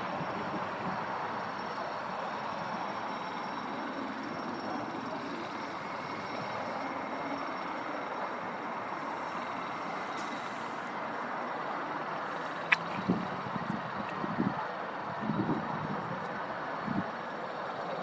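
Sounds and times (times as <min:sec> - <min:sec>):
high turbine whine: 0:00.0 - 0:18.0
jet engine rush: 0:02.7 - 0:14.4.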